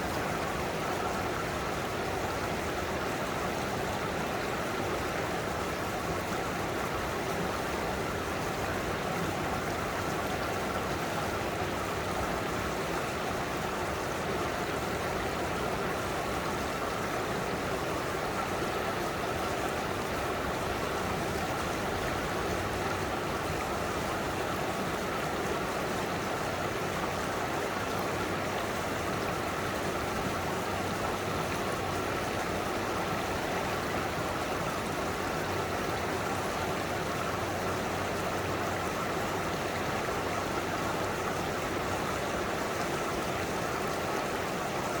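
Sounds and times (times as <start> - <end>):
stream rushing and babbling: 0.0 - 45.0.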